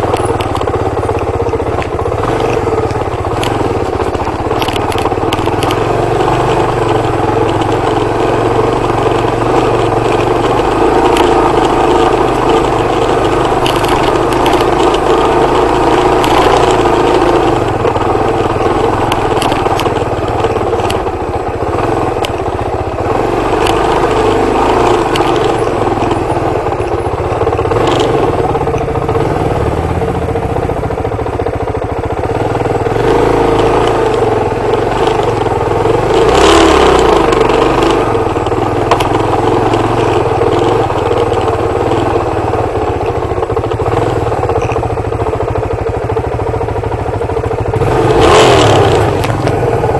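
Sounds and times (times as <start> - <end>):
dirt bike engine running: 0.0 - 49.9.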